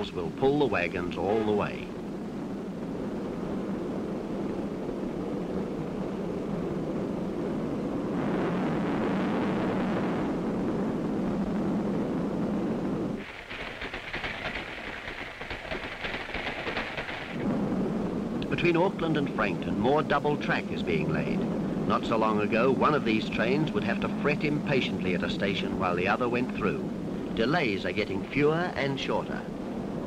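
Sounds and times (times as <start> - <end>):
wheels clattering on rails: 13.2 - 17.4
goods train rumbling: 13.2 - 17.5, 18.4 - 29.5.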